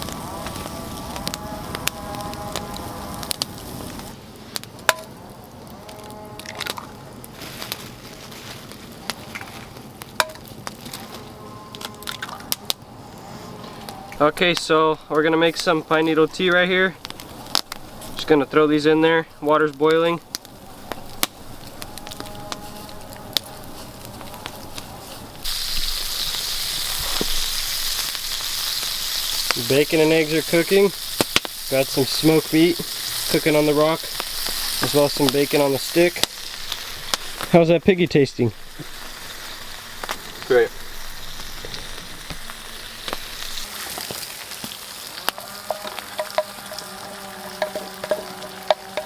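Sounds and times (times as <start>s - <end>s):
food sizzling in a pan: 0.0s - 5.1s, 20.5s - 37.7s, 38.3s - 49.0s
campfire crackling: 0.0s - 49.0s.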